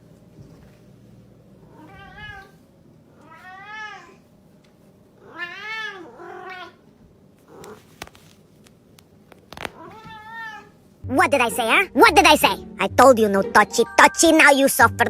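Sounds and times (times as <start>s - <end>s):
cat meowing: 1.7s - 4.2s, 5.2s - 6.8s, 9.6s - 10.8s.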